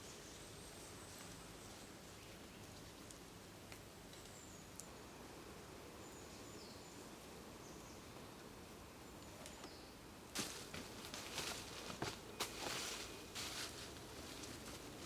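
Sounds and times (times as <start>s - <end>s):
rustling crunch in dry leaves: 10.4s - 15.0s.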